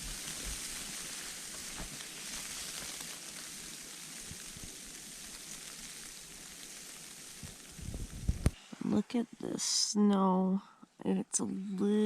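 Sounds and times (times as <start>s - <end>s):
snow hissing on a tent: 0.0s - 10.5s
faint ticks: 7.4s - 8.6s.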